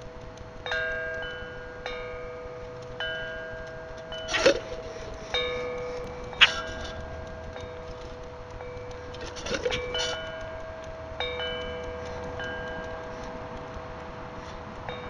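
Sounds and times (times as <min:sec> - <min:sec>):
chime-like ringing tones: 0:00.0 - 0:15.0
grackles calling: 0:04.3 - 0:07.0.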